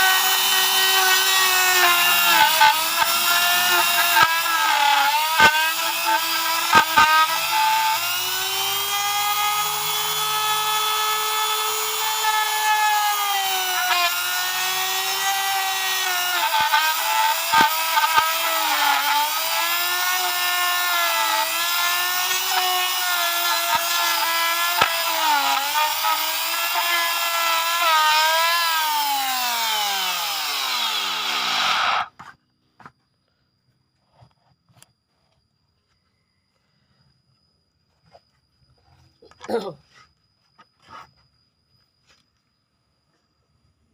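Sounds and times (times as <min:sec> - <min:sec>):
mortising machine motor whining: 0:00.0 - 0:32.2.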